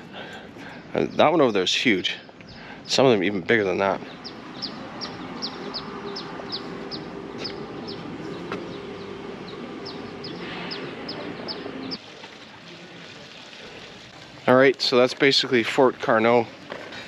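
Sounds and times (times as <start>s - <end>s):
bird chirping: 2.0s - 12.0s
steady low hum: 2.6s - 12.0s.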